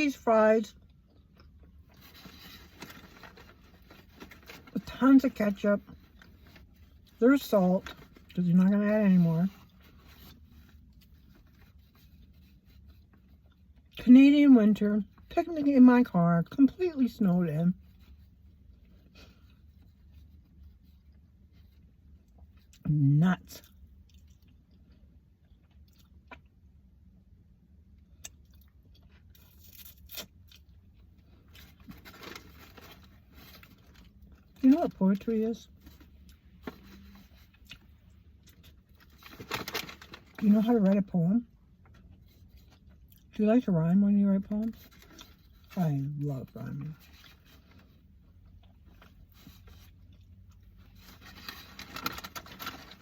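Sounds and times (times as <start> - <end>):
person chewing food: 0.8 - 2.1, 23.7 - 26.8, 27.9 - 31.8
person chewing: 23.8 - 26.6.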